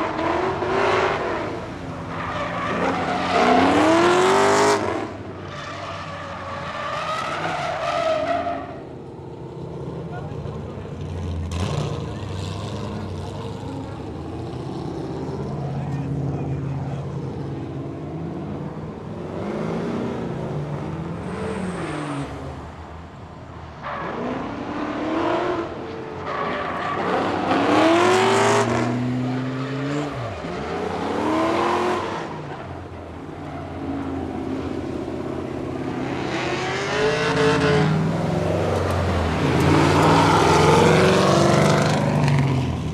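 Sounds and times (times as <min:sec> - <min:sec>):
car engine revving: 0:00.0 - 0:05.3, 0:24.0 - 0:42.9
tire squeal: 0:00.0 - 0:08.9, 0:23.8 - 0:34.8.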